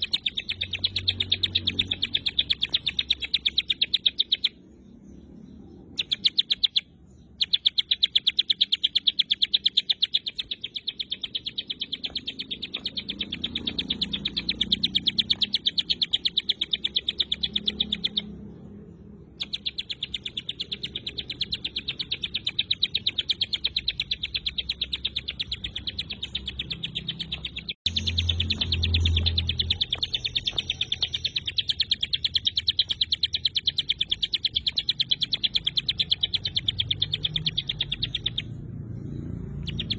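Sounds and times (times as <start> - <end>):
bird sharp high chipping notes: 0.0 - 39.9.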